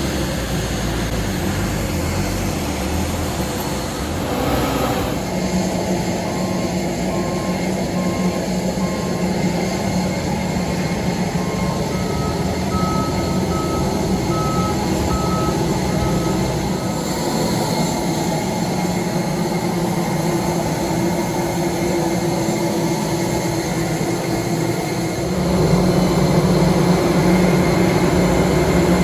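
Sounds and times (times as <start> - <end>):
airplane rumble: 0.0 - 29.0
short electronic beeps: 11.3 - 16.5.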